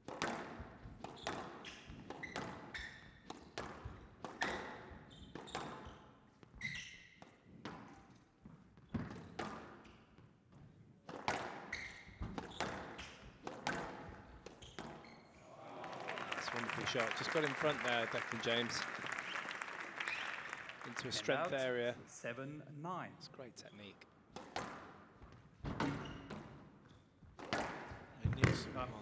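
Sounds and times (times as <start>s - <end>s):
squash ball hitting rackets and walls: 0.0s - 5.9s, 6.6s - 10.4s, 11.0s - 15.2s, 24.3s - 26.8s, 27.4s - 28.6s
shoes squeaking on court floor: 0.4s - 15.4s, 25.2s - 28.6s.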